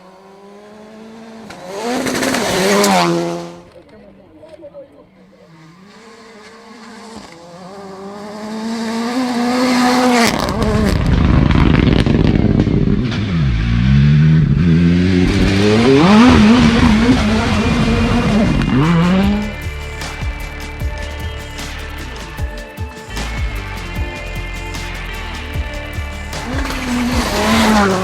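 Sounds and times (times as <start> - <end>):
rally car engine revving: 0.0 - 3.8, 5.4 - 28.0
tyres rumbling on loose gravel: 15.1 - 19.9.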